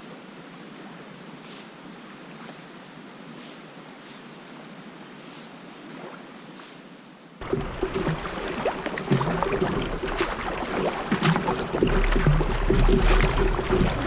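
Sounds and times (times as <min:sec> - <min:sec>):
lake water washing softly: 0:00.6 - 0:14.0
water splashing: 0:07.4 - 0:14.0.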